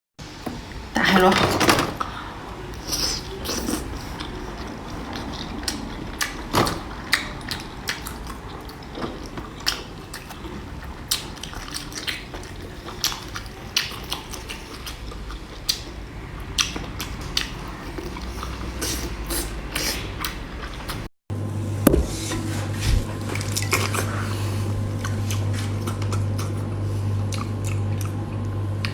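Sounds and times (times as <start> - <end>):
crunchy chewing: 2.8 - 21.0, 22.9 - 28.9
low steady hum: 21.3 - 28.9.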